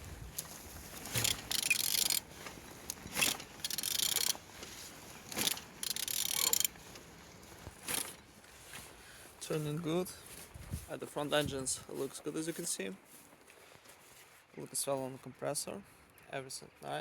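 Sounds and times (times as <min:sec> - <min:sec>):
car engine turned over by hand: 0:00.0 - 0:08.2.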